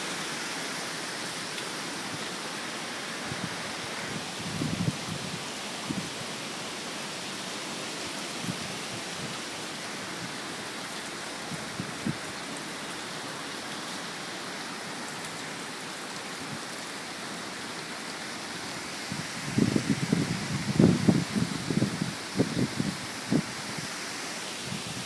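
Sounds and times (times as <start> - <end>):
strong wind hissing: 3.0 - 6.4, 18.7 - 25.0.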